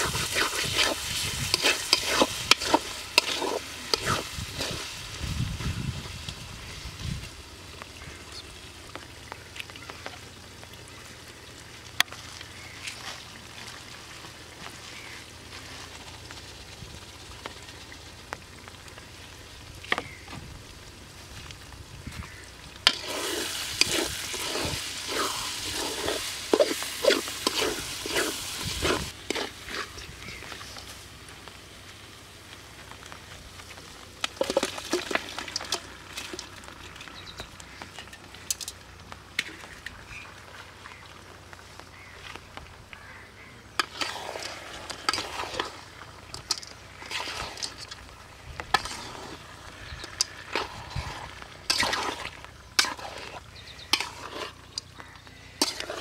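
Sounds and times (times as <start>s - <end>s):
metal spatula scraping pot: 0.0s - 4.8s, 22.8s - 30.0s, 43.8s - 48.0s, 48.7s - 54.9s, 55.6s - 56.0s
masala sizzling in a pot: 0.0s - 40.3s, 43.7s - 56.0s.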